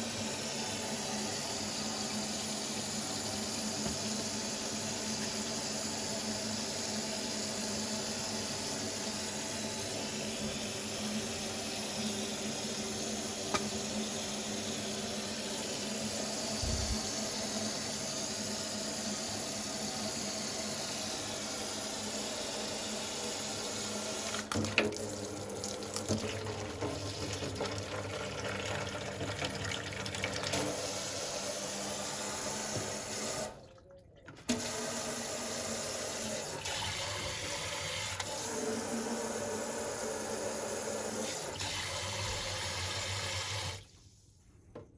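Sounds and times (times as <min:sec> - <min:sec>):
tap water running into sink: 0:23.7 - 0:43.8.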